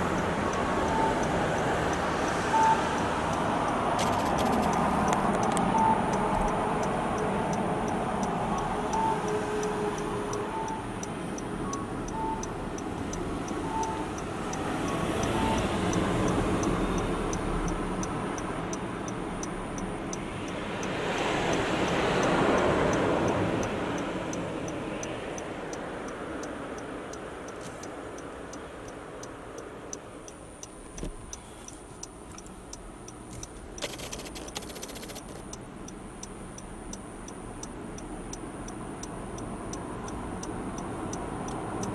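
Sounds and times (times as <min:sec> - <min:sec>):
car road and engine noise: 0:00.0 - 0:41.9
light regular ticking: 0:00.0 - 0:41.9.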